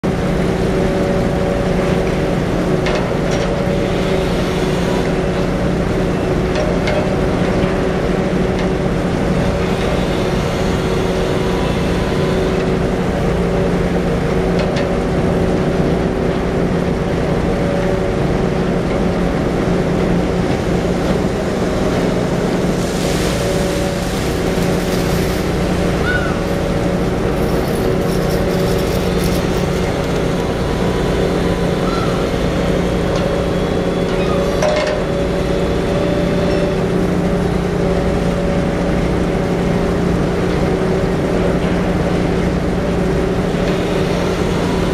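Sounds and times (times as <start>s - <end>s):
boat engine running: 0.0s - 44.9s
rushing hiss: 22.7s - 30.0s.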